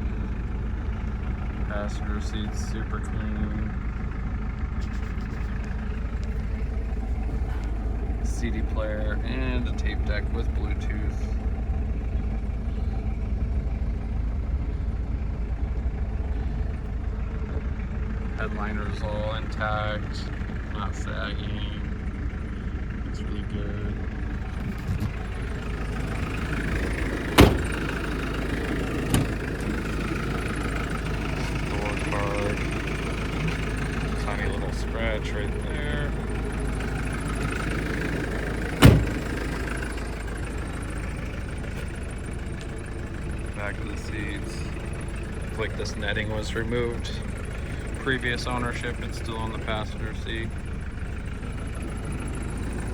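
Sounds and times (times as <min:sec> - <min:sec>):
diesel engine idling: 0:00.0 - 0:52.9
loud thump: 0:27.4 - 0:27.9, 0:38.8 - 0:39.3.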